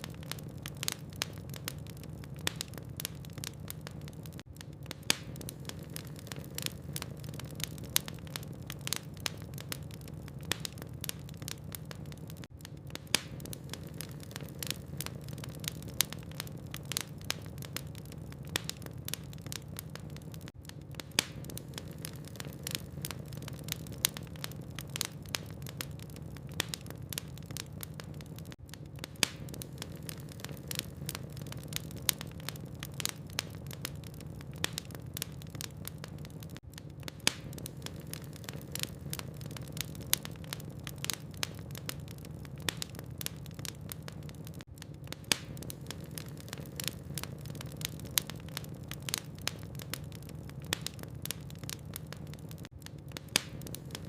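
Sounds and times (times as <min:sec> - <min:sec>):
logs crackling in a fireplace: 0:00.0 - 0:54.0.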